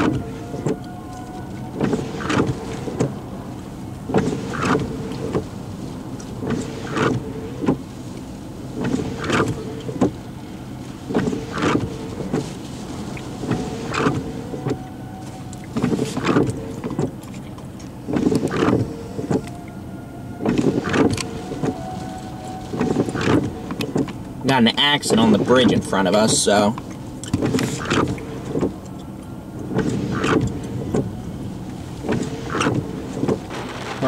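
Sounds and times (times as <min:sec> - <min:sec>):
windshield wipers sweeping: 0:00.0 - 0:34.0
wiper motor whine: 0:00.0 - 0:34.0
wiper knocks and squeaks: 0:11.1 - 0:24.3.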